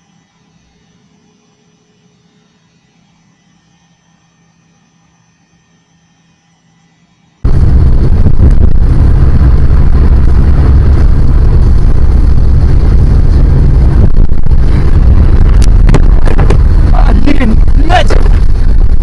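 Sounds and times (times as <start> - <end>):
car road and wind noise: 7.4 - 19.0.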